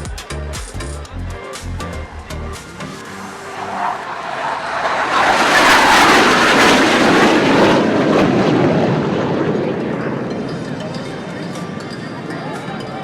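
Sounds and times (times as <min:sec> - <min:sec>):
jets flying past: 0:02.6 - 0:10.6.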